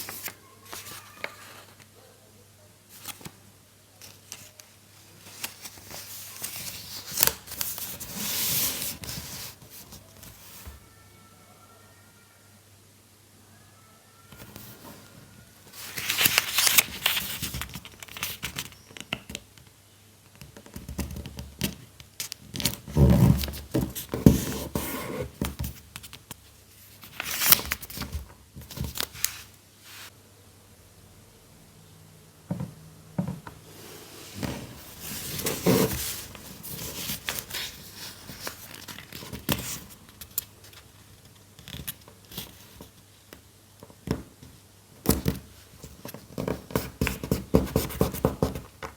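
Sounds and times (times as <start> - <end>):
paper rustling: 0.0 - 1.9, 4.0 - 10.8, 14.4 - 19.4, 21.0 - 30.1, 33.7 - 43.0
paper scraping: 15.7 - 18.6, 33.7 - 39.9.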